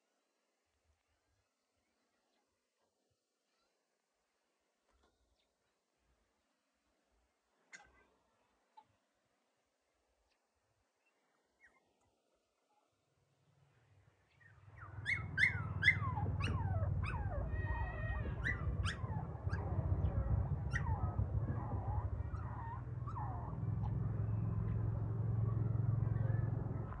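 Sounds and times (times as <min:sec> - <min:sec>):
steady low hum: 0:14.5 - 0:27.0
puppy whimpering and whining: 0:14.8 - 0:23.9.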